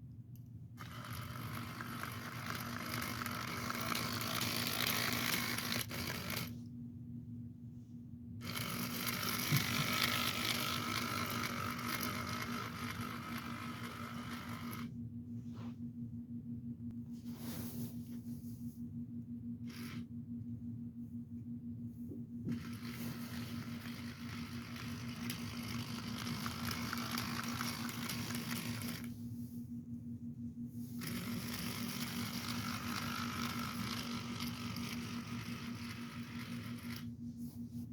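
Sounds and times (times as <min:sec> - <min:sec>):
steady low hum: 0:00.0 - 0:37.9
toy train wheels on rails: 0:00.8 - 0:06.5, 0:08.4 - 0:14.9, 0:19.7 - 0:20.0, 0:22.5 - 0:29.1, 0:31.0 - 0:37.1
small electric motor whirring: 0:00.8 - 0:06.6, 0:08.4 - 0:14.9, 0:19.6 - 0:20.1, 0:22.4 - 0:29.2, 0:31.0 - 0:37.2.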